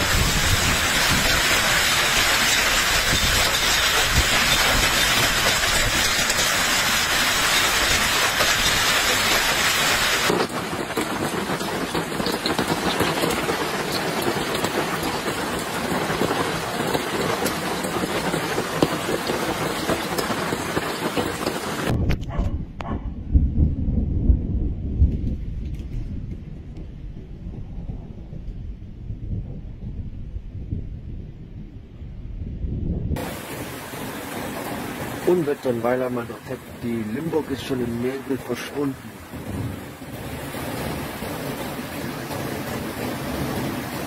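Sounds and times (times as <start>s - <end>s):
heavy rain pelting down: 0.0s - 22.2s, 33.2s - 44.0s.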